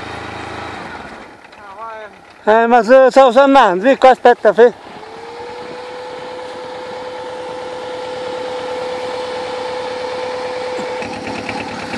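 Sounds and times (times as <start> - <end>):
quad engine running: 0.0 - 11.9
steady high whine: 2.4 - 11.9.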